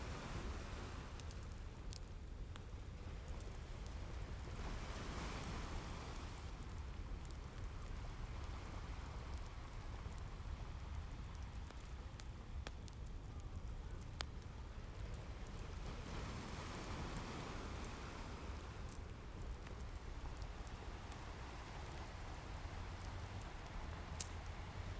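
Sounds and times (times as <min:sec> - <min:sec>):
wood fire crackling and popping: 0:00.2 - 0:24.9
ocean surf rumbling: 0:15.9 - 0:24.9.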